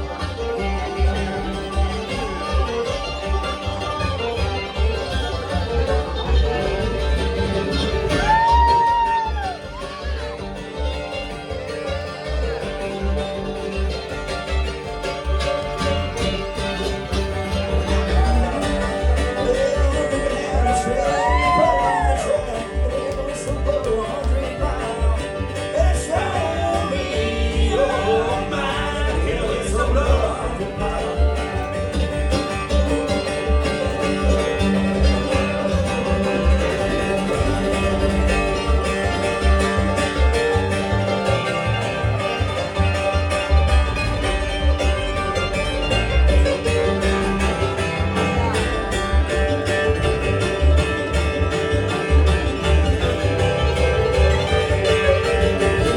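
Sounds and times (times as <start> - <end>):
bluegrass band playing: 0.0 - 55.9
steady bass beat: 0.0 - 55.9.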